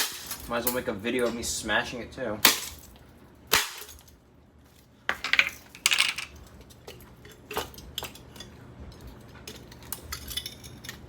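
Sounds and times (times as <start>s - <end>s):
metal pieces clattering: 5.2s - 6.4s, 9.9s - 11.0s.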